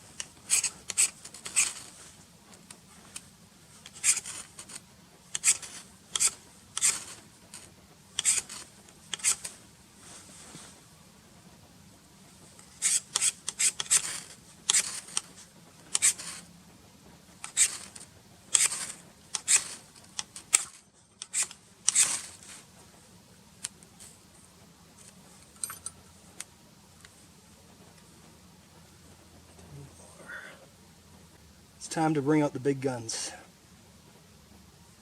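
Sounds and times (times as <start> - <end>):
ferro rod scraping: 0.0 - 3.2, 3.8 - 10.8, 12.6 - 16.5, 17.4 - 22.7.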